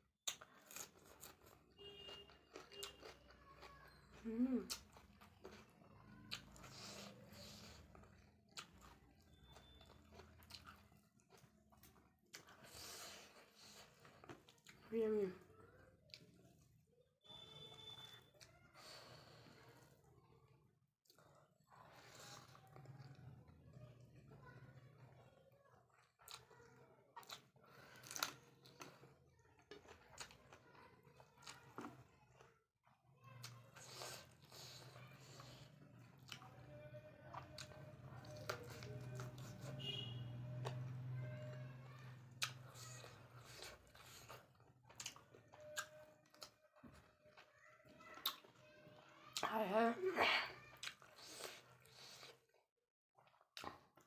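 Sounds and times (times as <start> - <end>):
person chewing food: 0.2 - 20.1, 21.0 - 49.5, 50.3 - 52.6, 53.2 - 54.0.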